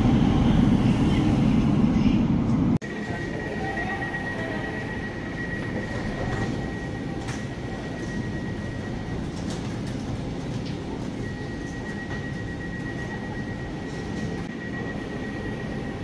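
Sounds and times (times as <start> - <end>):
train rumbling: 0.0 - 16.0
high-pitched whine: 2.8 - 9.2.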